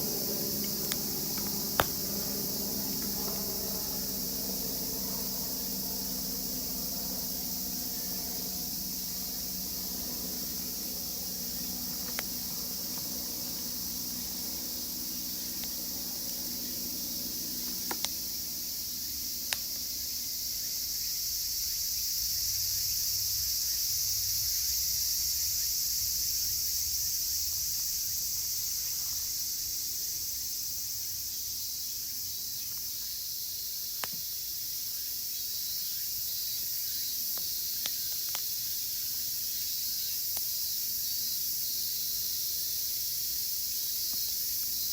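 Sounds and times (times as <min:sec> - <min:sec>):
campfire crackling: 0:00.0 - 0:20.1, 0:36.6 - 0:39.6
cicada chorus: 0:00.0 - 0:44.9.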